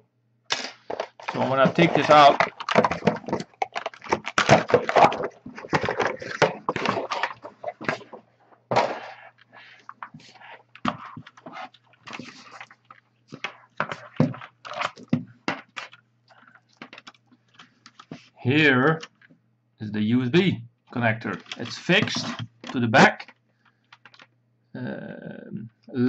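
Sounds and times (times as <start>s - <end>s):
cardboard and packing rustling: 0.8s - 16.0s, 21.3s - 23.3s.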